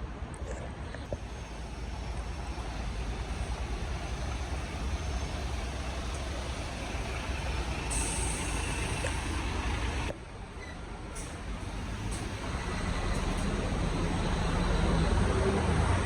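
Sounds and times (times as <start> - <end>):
street traffic: 0.0 - 16.0
heavy vehicle engine rumbling: 0.7 - 16.0
high hiss: 1.2 - 10.1.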